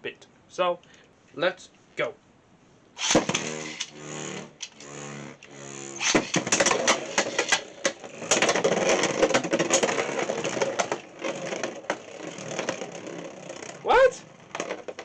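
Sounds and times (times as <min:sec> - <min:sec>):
spinning tops clashing and rattling: 0:03.0 - 0:04.9, 0:05.9 - 0:13.8.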